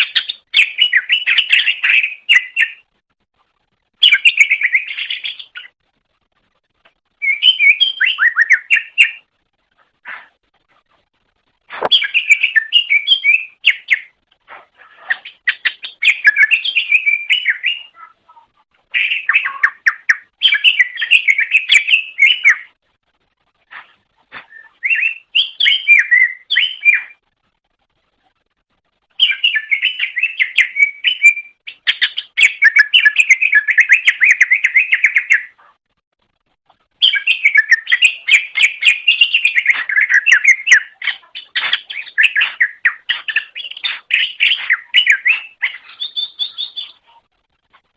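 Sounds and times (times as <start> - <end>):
bird singing chirps and whistles: 0.0 - 2.8, 4.0 - 5.7, 7.2 - 9.3, 11.8 - 14.2, 15.1 - 18.0, 18.9 - 22.8, 24.4 - 27.2, 29.2 - 35.6, 37.0 - 47.1.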